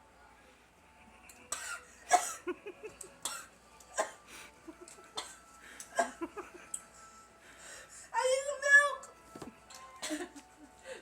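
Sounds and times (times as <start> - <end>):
child coughing: 1.5 - 2.5.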